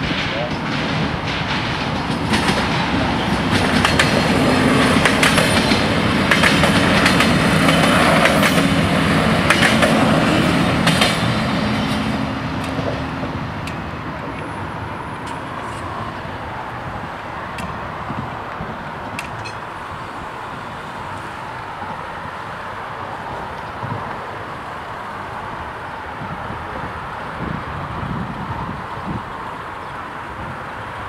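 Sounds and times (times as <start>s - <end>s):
train wheels clicking over rail joints: 0.0s - 16.9s, 17.5s - 20.3s.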